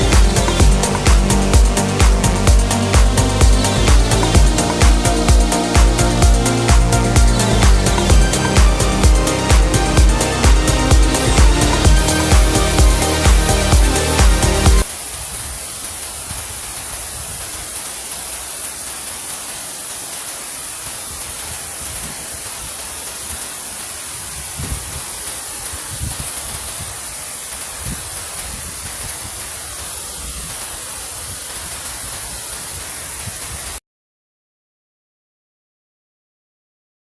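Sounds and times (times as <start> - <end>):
river water rushing: 0.0 - 33.2
wind buffeting microphone: 24.2 - 27.0.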